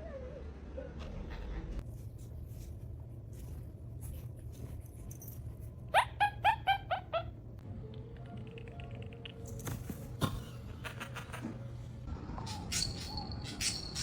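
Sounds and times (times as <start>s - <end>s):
animal yelping: 5.9s - 7.4s.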